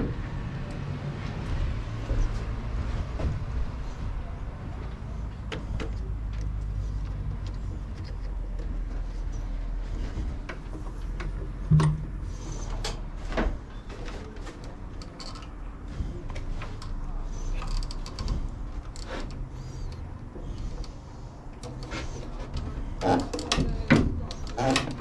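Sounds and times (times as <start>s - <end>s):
steady low hum: 0.0s - 23.2s
clicks and knocks of tools: 10.4s - 15.6s, 16.3s - 25.0s.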